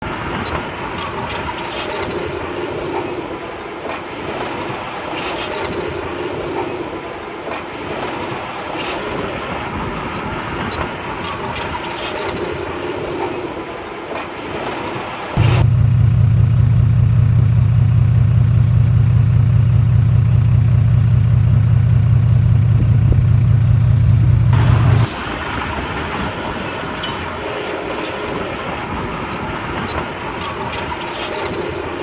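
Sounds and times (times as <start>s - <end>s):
heavy machinery diesel engine: 0.0s - 32.0s
short metallic clanks: 24.5s - 32.0s.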